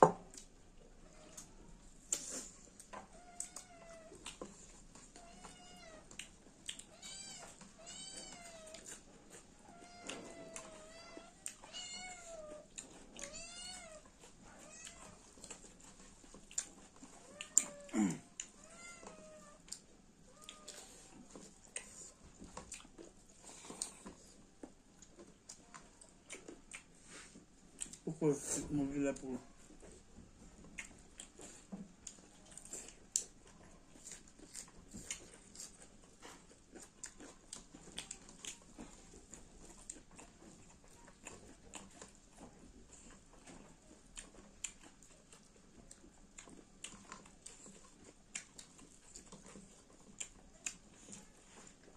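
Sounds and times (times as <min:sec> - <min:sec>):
close chewing with mouth clicks: 0:00.0 - 0:51.9
cat meowing: 0:05.2 - 0:06.1, 0:06.9 - 0:08.8, 0:09.6 - 0:15.3, 0:17.2 - 0:19.6.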